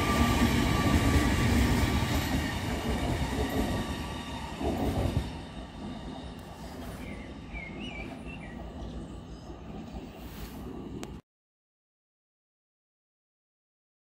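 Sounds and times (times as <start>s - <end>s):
train rumbling past: 0.0s - 11.2s.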